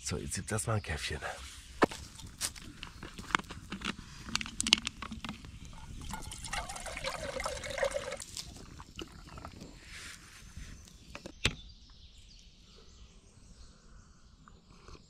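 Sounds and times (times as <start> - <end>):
liquid pouring into a cup: 4.6 - 9.8.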